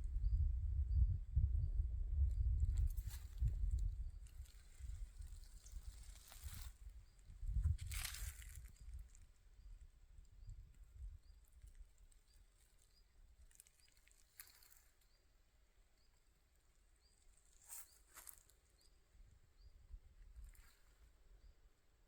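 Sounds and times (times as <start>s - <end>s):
faint high chirp: 2.4s - 15.4s, 17.0s - 19.0s
soft rustles or crunches: 2.7s - 9.3s, 11.6s - 15.2s, 17.2s - 18.7s, 20.4s - 21.1s.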